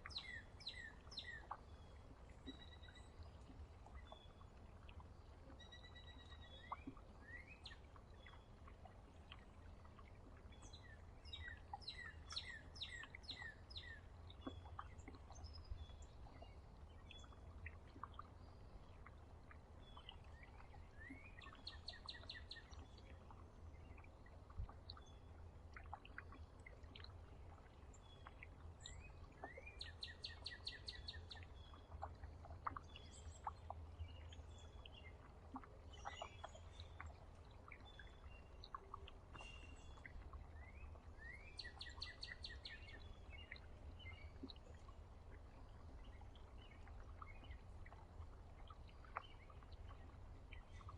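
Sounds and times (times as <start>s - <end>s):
songbirds chirping and whistling: 0.0s - 1.7s, 10.6s - 17.4s, 19.9s - 23.2s, 28.2s - 35.2s, 35.9s - 37.2s, 37.8s - 44.4s.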